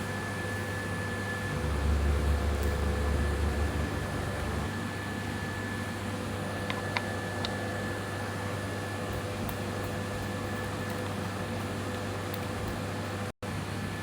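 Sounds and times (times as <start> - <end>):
machine hum: 1.2 - 5.7
press low rumble: 1.5 - 4.7.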